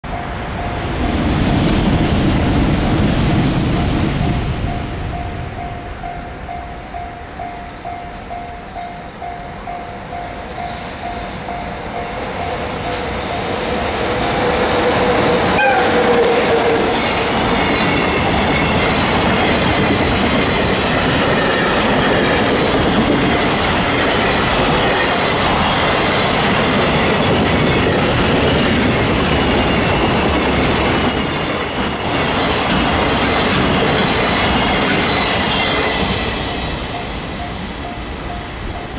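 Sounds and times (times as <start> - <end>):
freight train rumbling and clattering: 0.0 - 38.9
high wheel squeal: 10.1 - 37.2.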